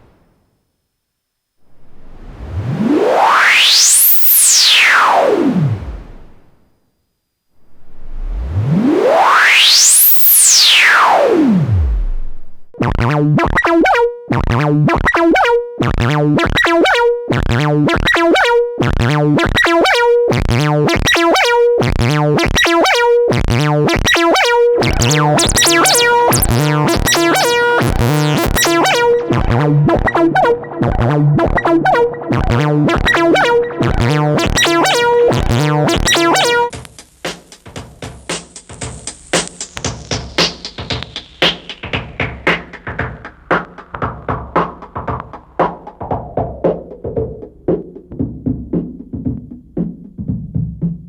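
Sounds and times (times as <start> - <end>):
pure tone sliding into bass: 1.6 - 6.6, 7.6 - 13.0, 24.8 - 36.7
rhythmic bubbly synth sequence: 11.7 - 36.8.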